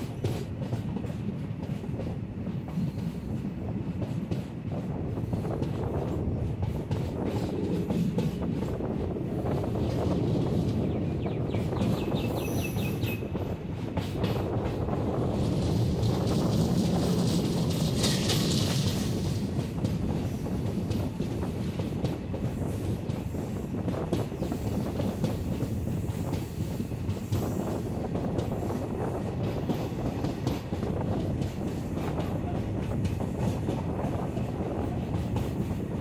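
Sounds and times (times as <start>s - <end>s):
train wheels rumbling on rail: 0.0s - 36.0s
wind rushing past: 0.5s - 36.0s.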